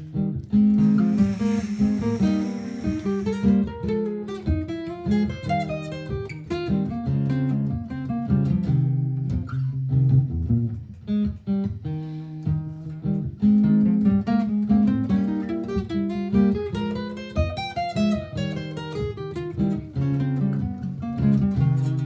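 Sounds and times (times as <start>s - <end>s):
acoustic guitar picking and strumming: 0.0s - 9.5s, 10.4s - 22.0s
layered repeating guitar parts: 0.0s - 22.0s.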